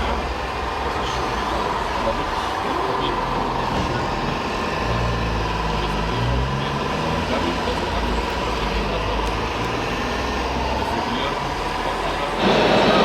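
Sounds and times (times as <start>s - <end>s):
model truck motor humming: 0.0s - 13.0s.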